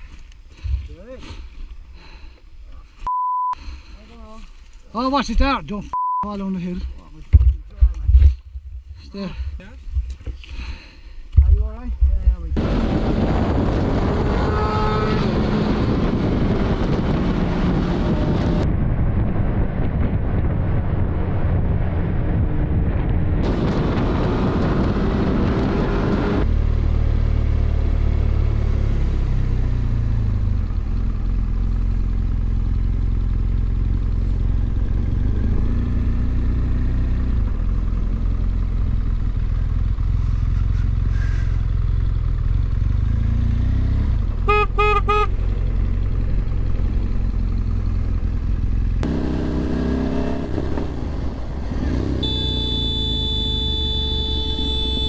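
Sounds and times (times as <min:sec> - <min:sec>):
motorcycle engine rumble: 0:06.6 - 0:55.0
wind on microphone: 0:11.4 - 0:26.5
vehicle horn beeps: 0:14.4 - 0:15.4, 0:40.2 - 0:41.6, 0:44.5 - 0:45.4, 0:51.9 - 0:55.0.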